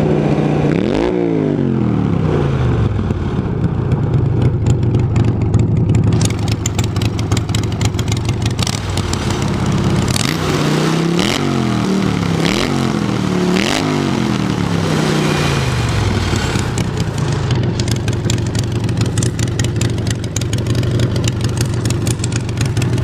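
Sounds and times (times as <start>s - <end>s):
engine revving: 0.0s - 3.7s, 6.0s - 23.0s.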